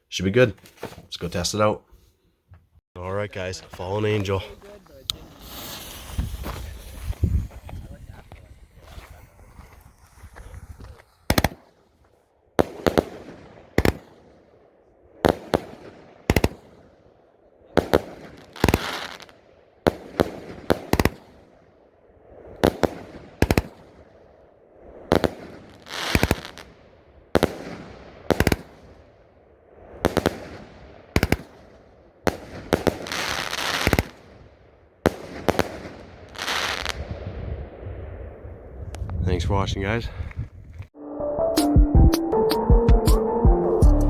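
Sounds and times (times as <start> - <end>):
firework bangs: 3.6 - 39.3
firework hiss and crackle: 3.8 - 14.6, 15.2 - 17.0, 17.7 - 37.6.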